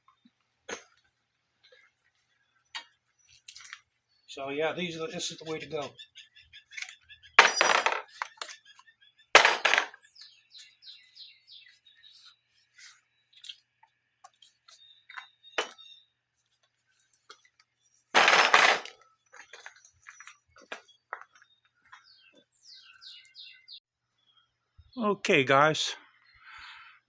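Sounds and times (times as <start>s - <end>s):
objects clinking: 7.4s - 8.6s, 9.4s - 10.1s, 18.2s - 21.4s.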